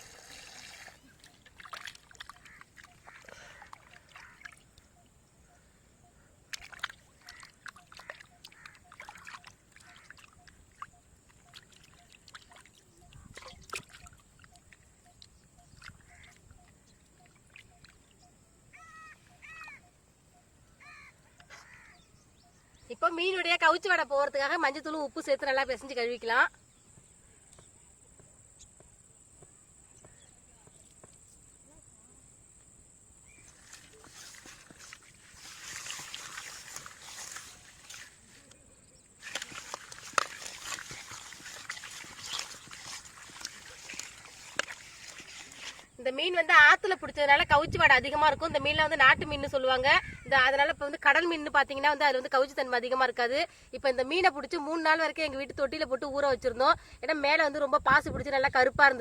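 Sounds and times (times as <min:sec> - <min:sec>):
hands squelching fish pieces: 0:01.2 - 0:04.7, 0:06.5 - 0:10.6, 0:33.5 - 0:38.5, 0:39.2 - 0:45.9.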